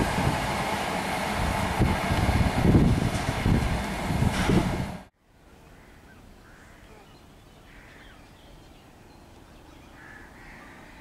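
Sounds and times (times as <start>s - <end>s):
faint bird calls: 5.5s - 11.0s.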